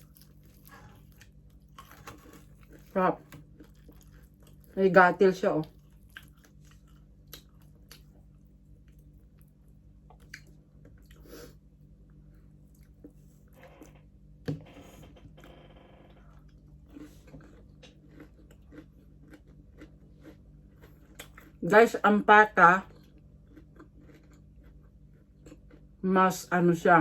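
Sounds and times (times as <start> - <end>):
person chewing crispy pork: 0.0 - 4.8, 5.6 - 13.5, 16.2 - 21.6, 22.8 - 26.0.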